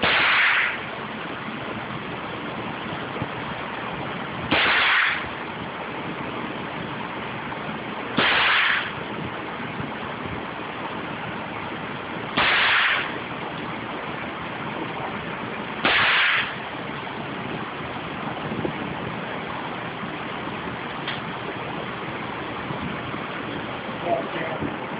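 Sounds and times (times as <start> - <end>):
suppressed gunshots: 0.0 - 0.8, 4.5 - 5.2, 8.2 - 8.9, 12.4 - 13.1, 15.8 - 16.6
steady hiss: 12.3 - 14.2, 14.8 - 17.0.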